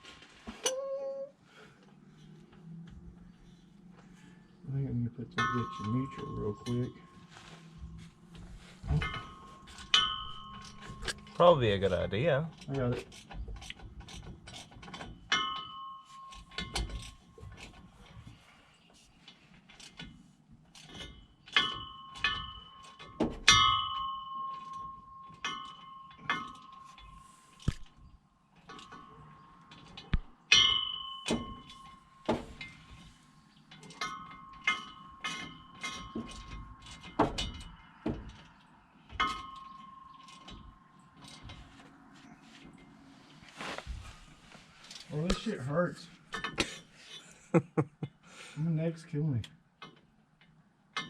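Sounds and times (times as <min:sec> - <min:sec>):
hand tools clanking on steel: 0:05.3 - 0:07.4, 0:08.3 - 0:18.3, 0:19.6 - 0:27.9, 0:28.6 - 0:41.7, 0:46.3 - 0:47.3.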